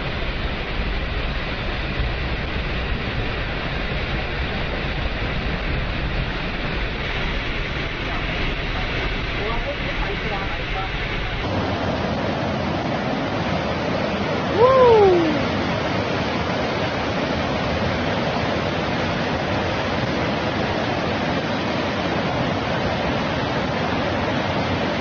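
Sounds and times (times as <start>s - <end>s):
floodwater rushing: 0.0s - 25.0s
short rising and falling call: 14.5s - 15.4s.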